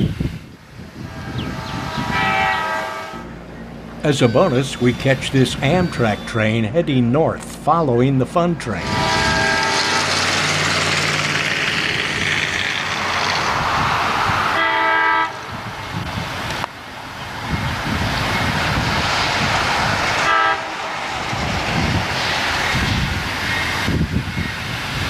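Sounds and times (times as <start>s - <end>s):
train passing with rushing wheels: 0.0s - 25.0s
train horn blast: 1.0s - 3.4s, 8.8s - 10.7s, 14.5s - 15.5s, 20.2s - 21.0s.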